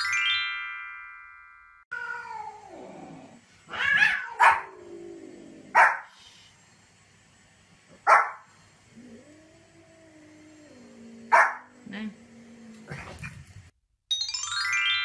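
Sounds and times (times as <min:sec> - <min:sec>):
cat meowing: 0:01.9 - 0:02.7, 0:03.7 - 0:04.6
small dog barking: 0:03.8 - 0:04.8, 0:05.7 - 0:06.1, 0:08.0 - 0:08.4, 0:11.3 - 0:11.7.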